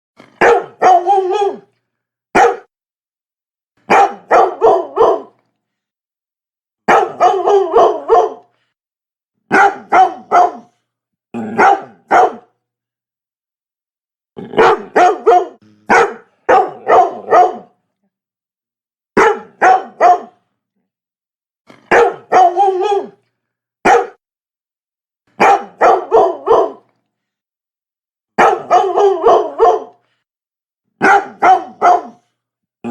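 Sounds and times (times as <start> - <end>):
dog barking: 0.3 - 1.7, 2.3 - 2.7, 3.9 - 5.4, 6.9 - 8.5, 9.5 - 10.8, 11.5 - 12.6, 14.5 - 17.8, 19.2 - 20.4, 21.8 - 23.2, 23.8 - 24.2, 25.4 - 26.9, 28.4 - 30.0, 31.0 - 32.9.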